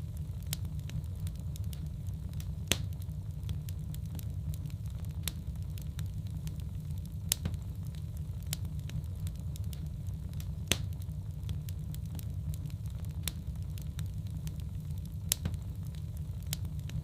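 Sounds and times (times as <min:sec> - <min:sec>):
low steady rumble: 0:00.0 - 0:17.0
wood fire crackling and popping: 0:00.0 - 0:17.0.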